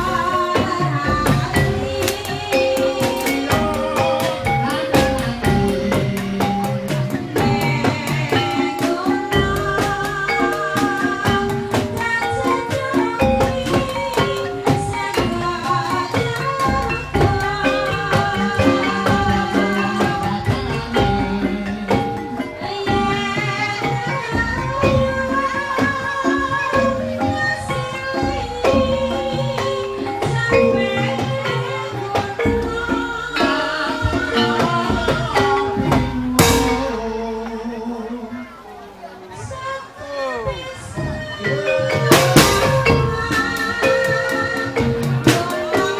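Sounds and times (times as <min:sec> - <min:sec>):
steady drum strokes: 0:00.0 - 0:38.6, 0:41.0 - 0:45.9
tuned percussion melody: 0:00.0 - 0:45.9.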